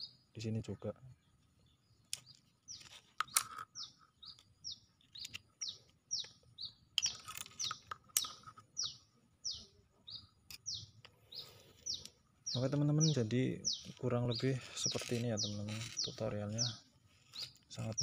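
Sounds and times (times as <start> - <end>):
small bird chirping: 0.0 - 18.0
plastic parts clicking: 2.1 - 4.5, 7.0 - 8.6.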